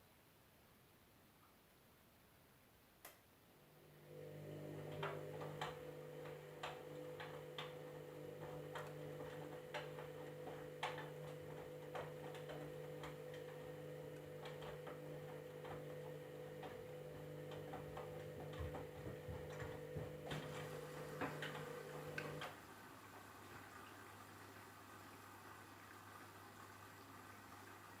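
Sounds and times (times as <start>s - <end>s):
washing machine motor hum: 3.6s - 28.0s.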